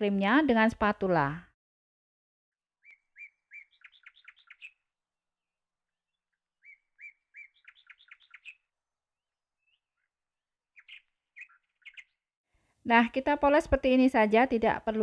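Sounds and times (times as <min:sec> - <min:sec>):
bird singing faintly: 0:02.8 - 0:04.9, 0:06.1 - 0:08.7, 0:10.8 - 0:12.2.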